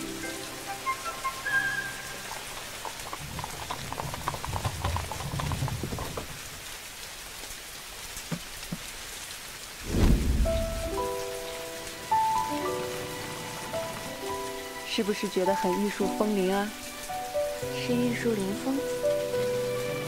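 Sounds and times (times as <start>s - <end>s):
heavy rain: 0.0s - 20.0s
deep boom: 9.8s - 11.3s
low rumble: 9.8s - 11.4s.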